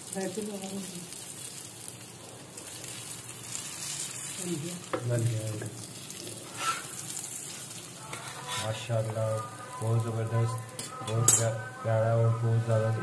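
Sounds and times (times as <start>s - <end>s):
food sizzling in oil: 0.0s - 13.0s
spatula scraping pan: 6.4s - 9.1s.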